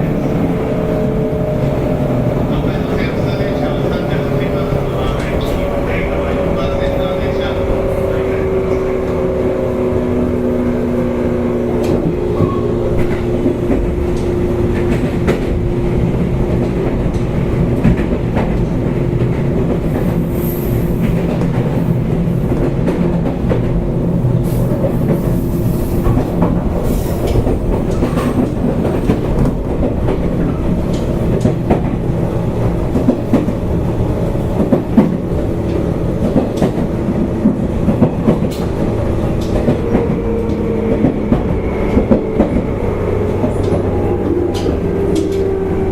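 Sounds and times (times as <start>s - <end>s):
train wheels rumbling on rail: 0.0s - 45.9s
wheels clacking over rail joints: 26.0s - 45.9s.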